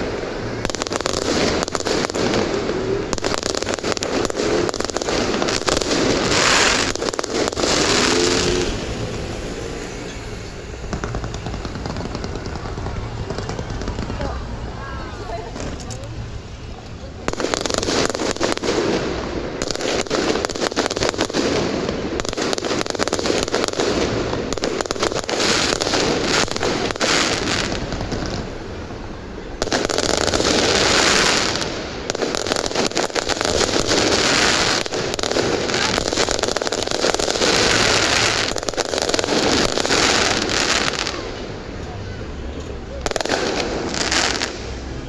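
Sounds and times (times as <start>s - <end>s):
fireworks crackles and bangs: 0.0s - 45.0s.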